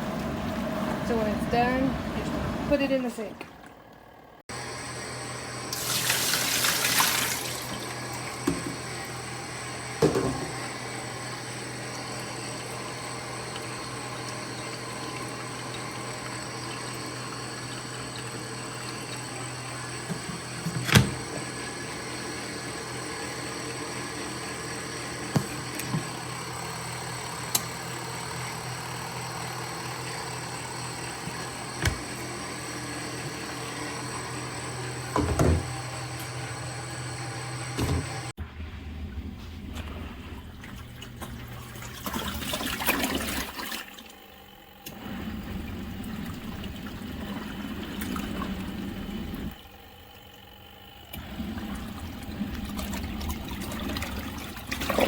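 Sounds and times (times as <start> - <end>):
water draining into a sink: 5.7 - 8.4, 39.1 - 44.3, 45.1 - 49.5, 51.2 - 55.0.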